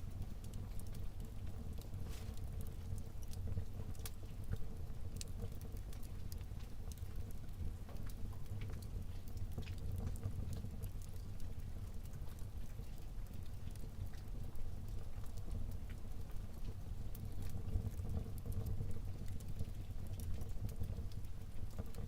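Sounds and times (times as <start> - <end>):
fire crackling in fireplace: 0.0 - 22.0.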